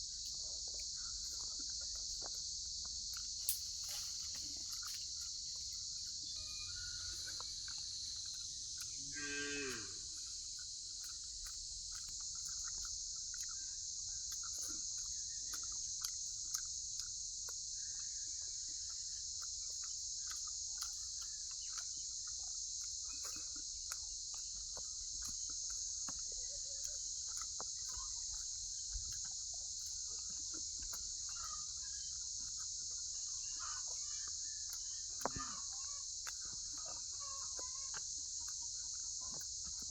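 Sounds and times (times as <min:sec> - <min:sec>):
steady high-pitched hiss: 0:00.0 - 0:39.9.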